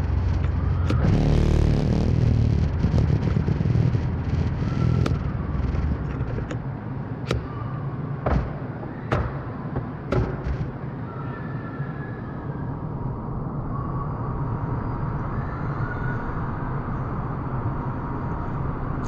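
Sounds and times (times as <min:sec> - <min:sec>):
scooter engine and road rumble: 0:00.0 - 0:11.0
sharp knocks: 0:07.2 - 0:10.8.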